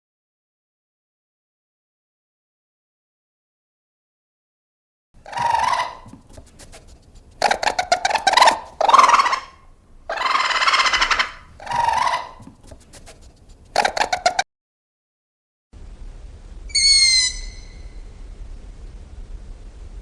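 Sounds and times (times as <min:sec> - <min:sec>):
animal harsh calls: 0:05.2 - 0:14.4, 0:16.7 - 0:18.0.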